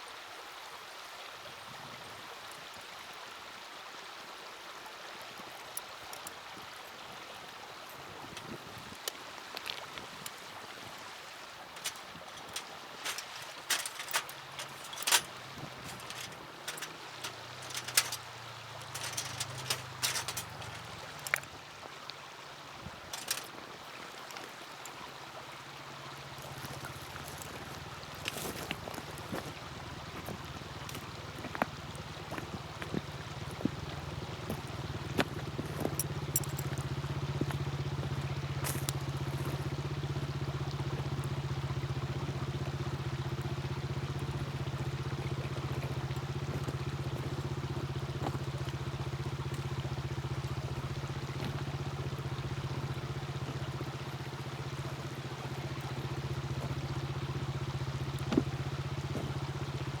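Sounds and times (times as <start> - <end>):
low engine-like hum: 10.0 - 22.0, 22.6 - 60.0
wood fire crackling: 11.7 - 21.6, 23.1 - 23.6.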